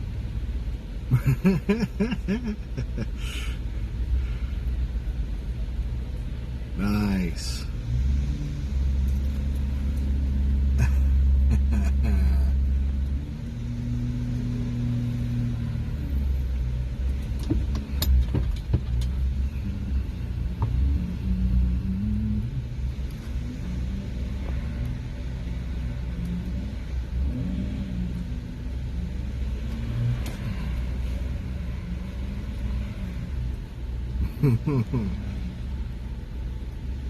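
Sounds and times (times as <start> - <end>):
vehicle engine rumbling: 0.0 - 37.0
sharp knocks and clunks: 17.4 - 19.0.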